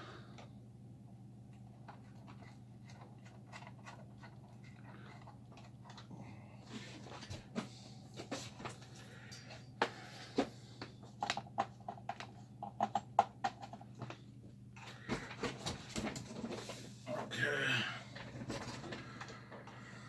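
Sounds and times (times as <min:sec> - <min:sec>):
faint electrical hum: 0:00.0 - 0:20.0.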